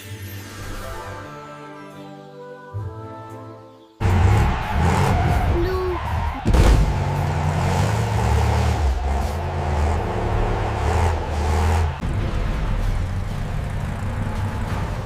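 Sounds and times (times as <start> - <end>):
cartoon monster truck engine revving: 4.0 - 15.0.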